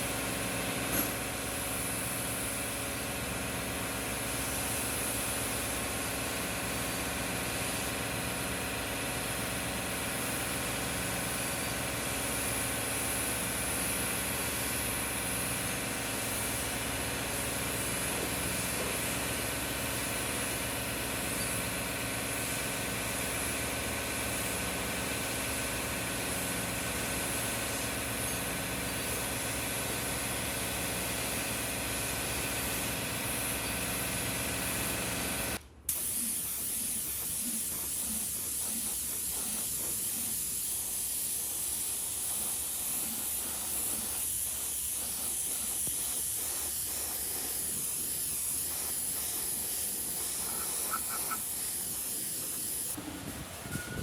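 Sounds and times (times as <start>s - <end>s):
steady hiss: 35.9s - 54.0s.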